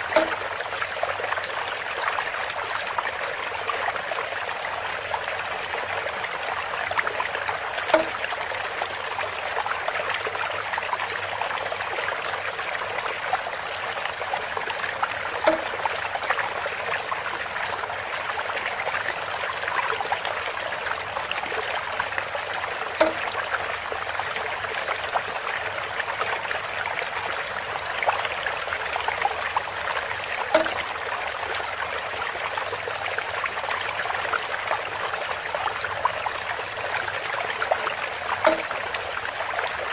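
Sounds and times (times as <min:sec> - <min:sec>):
water trickling through bamboo spout: 0:00.0 - 0:39.9
short hollow knock: 0:00.1 - 0:00.4, 0:07.9 - 0:08.3, 0:15.4 - 0:15.8, 0:23.0 - 0:23.4, 0:30.5 - 0:30.8, 0:38.4 - 0:38.7.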